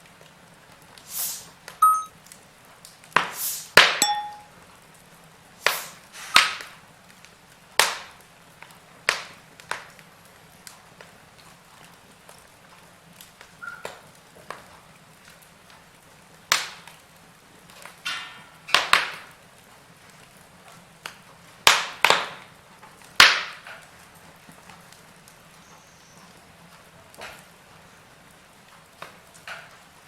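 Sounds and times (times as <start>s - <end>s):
wood fire crackling: 0.0s - 3.8s, 4.7s - 30.0s.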